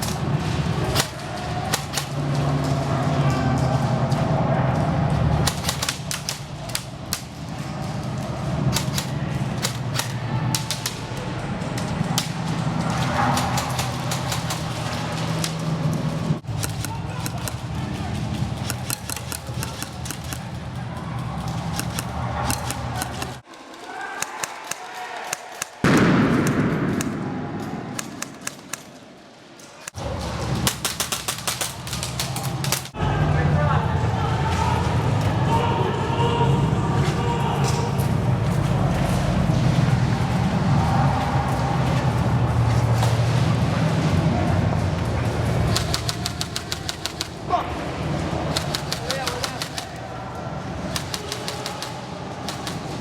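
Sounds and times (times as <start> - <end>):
airsoft guns firing: 0.0 - 2.8, 5.4 - 15.8, 16.4 - 33.0, 45.6 - 53.0
loud rushing noise: 24.2 - 53.0.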